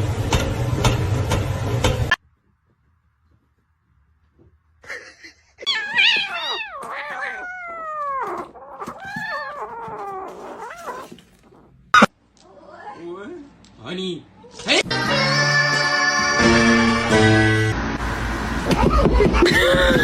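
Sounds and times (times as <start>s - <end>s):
cat meowing loudly: 5.7s - 11.6s.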